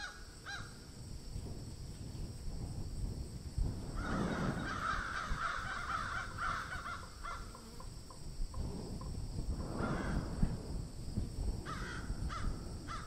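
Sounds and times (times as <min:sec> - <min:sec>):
steady low rumble: 0:08.3 - 0:13.0.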